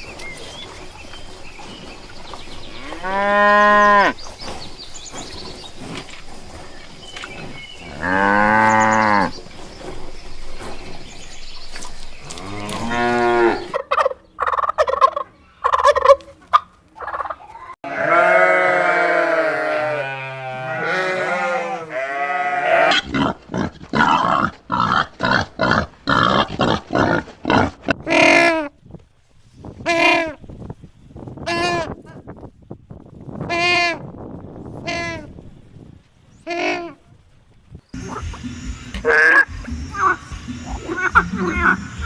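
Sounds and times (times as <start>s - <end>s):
cattle mooing: 7.9s - 9.3s, 12.3s - 13.7s, 17.8s - 23.0s.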